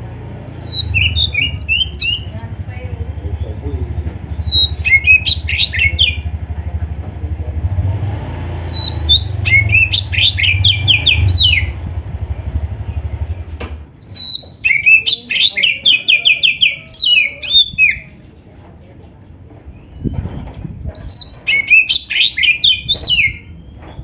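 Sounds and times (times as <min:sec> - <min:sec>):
low rumble: 0:00.0 - 0:14.4
bird singing whistled phrases: 0:00.5 - 0:02.3, 0:04.3 - 0:06.2, 0:08.6 - 0:11.8, 0:13.2 - 0:18.1, 0:21.0 - 0:24.0.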